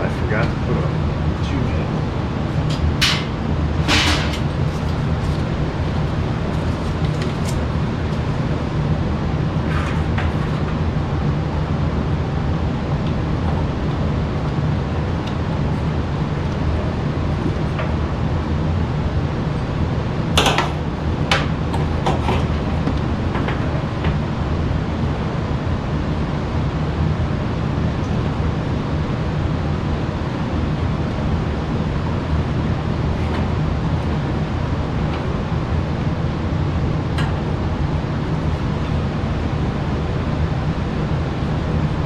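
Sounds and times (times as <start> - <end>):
low mechanical hum: 0.0 - 42.0
metal parts knocking and clanking: 2.7 - 5.3.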